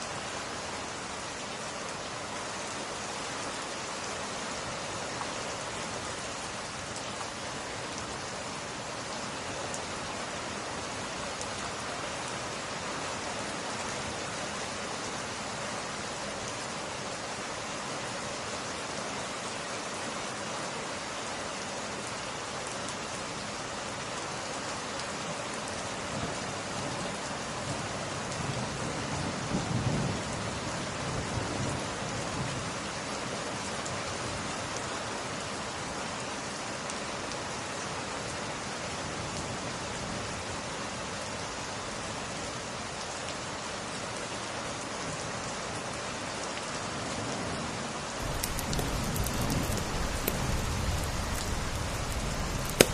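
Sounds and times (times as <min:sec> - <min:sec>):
rain pattering on glass: 0:48.2 - 0:52.9
thunder rumble: 0:48.2 - 0:52.9.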